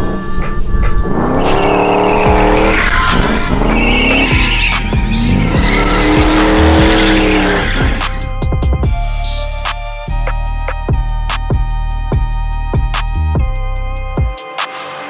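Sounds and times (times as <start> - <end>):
music: 0.0 - 15.0
car engine revving: 1.0 - 8.6
tyre squeal: 1.4 - 8.2.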